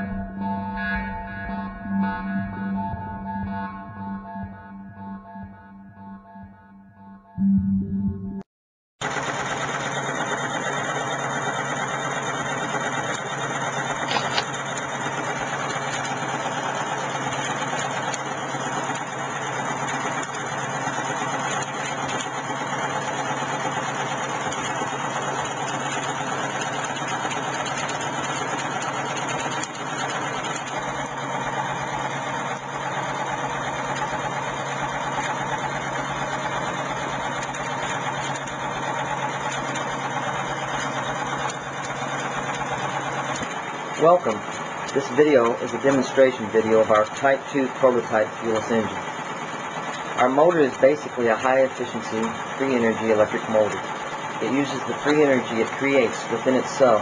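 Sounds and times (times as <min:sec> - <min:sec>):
electric motor humming: 0:09.0 - 0:57.0
sharp click: 0:14.0 - 0:14.6.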